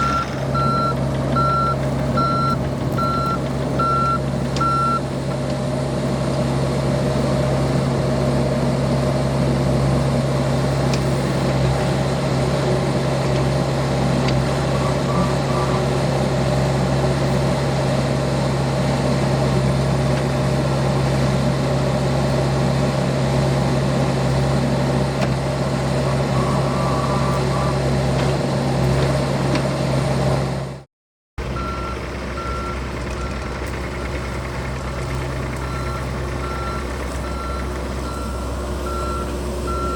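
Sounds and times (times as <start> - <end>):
travel alarm short beeps: 0.0 - 5.0, 35.7 - 39.9
excavator diesel engine running: 0.0 - 30.8, 31.4 - 39.9.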